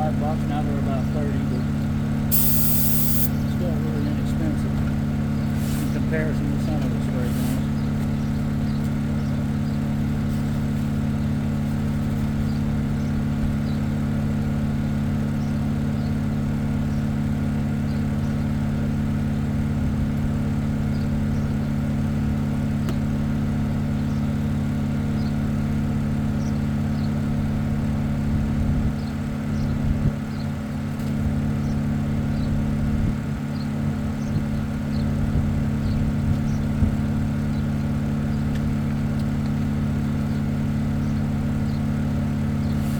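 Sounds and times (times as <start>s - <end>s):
machine hum: 2.3s - 4.3s.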